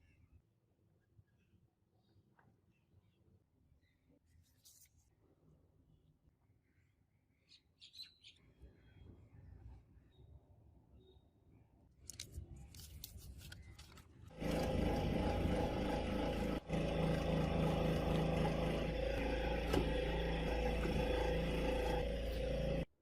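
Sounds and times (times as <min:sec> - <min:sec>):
workshop machine running: 0:14.3 - 0:23.0.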